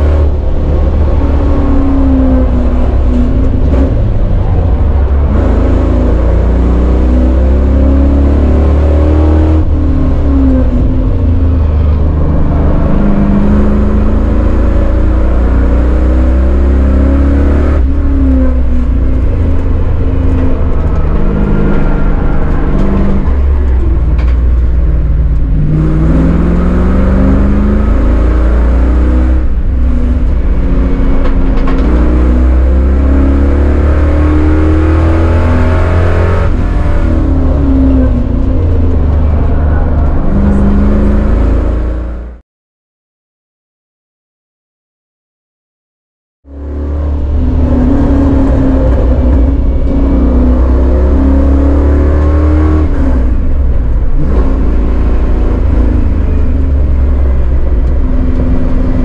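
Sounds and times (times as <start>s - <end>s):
car engine revving at full throttle: 0.0s - 42.4s, 46.5s - 59.0s.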